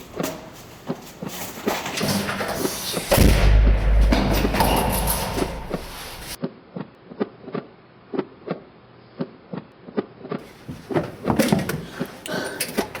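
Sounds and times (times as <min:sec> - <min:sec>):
loud noise: 0:02.0 - 0:06.4.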